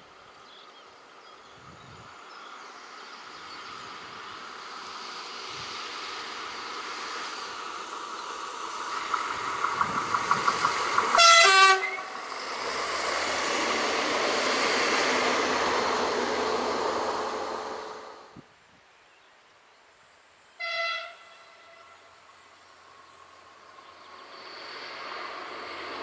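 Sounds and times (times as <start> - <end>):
train wheel and rail noise: 0.0 - 18.6, 20.4 - 26.0
train horn blast: 11.1 - 12.1, 20.6 - 22.1
short horn pulses: 11.2 - 12.1.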